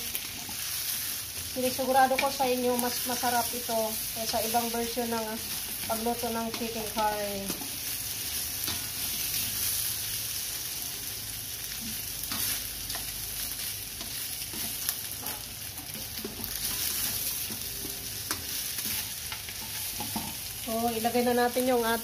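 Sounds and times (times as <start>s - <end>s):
chicken sizzling in a wok: 0.0s - 22.0s
spatula scraping a pan: 11.8s - 13.1s, 13.9s - 20.6s.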